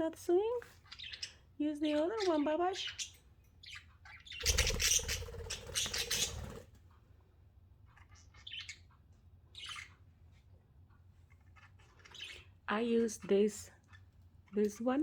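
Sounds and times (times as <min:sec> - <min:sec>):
budgerigars chirping and squawking: 0:00.7 - 0:06.7, 0:07.8 - 0:10.1, 0:11.2 - 0:14.2.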